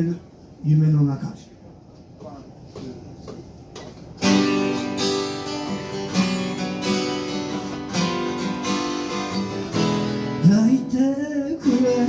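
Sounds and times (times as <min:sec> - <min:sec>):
acoustic guitar strummed chords: 0:04.2 - 0:12.0.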